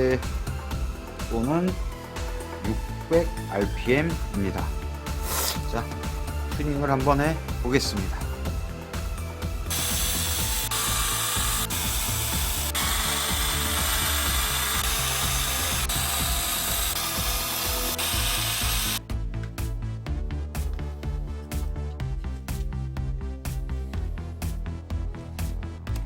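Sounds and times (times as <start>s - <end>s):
electronic music: 8.3s - 19.1s
tool hissing and grinding: 9.7s - 19.0s.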